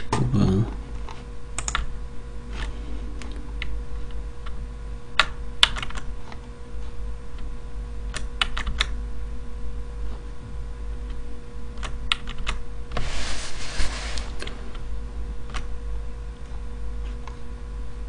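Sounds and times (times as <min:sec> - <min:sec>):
steady low hum: 0:00.0 - 0:18.0
typing on computer keyboard: 0:01.6 - 0:01.9, 0:08.1 - 0:08.9, 0:11.8 - 0:12.6.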